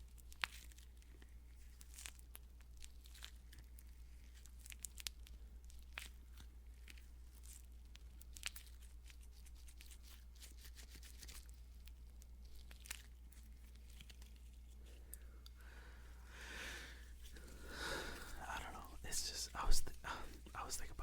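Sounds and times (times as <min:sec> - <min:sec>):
gloves rubbing and crinkling: 0:00.0 - 0:21.0
low electrical hum: 0:00.0 - 0:21.0.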